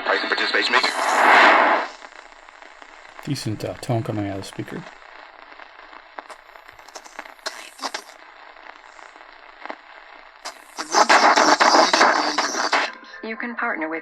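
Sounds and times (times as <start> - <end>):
radio static hiss: 0.0 - 13.4
static crackles and clicks: 0.0 - 13.4.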